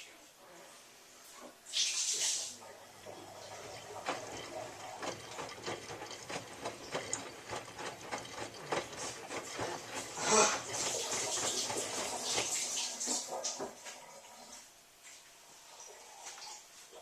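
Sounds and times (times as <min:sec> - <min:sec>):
washing machine hum: 0:01.0 - 0:17.0
clicks and knocks from drum: 0:03.1 - 0:13.8.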